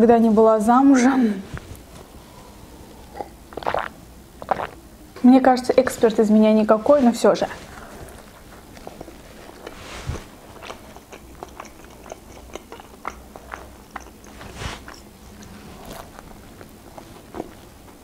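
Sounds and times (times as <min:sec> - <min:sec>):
person chewing food: 0:01.7 - 0:04.8, 0:07.7 - 0:18.0.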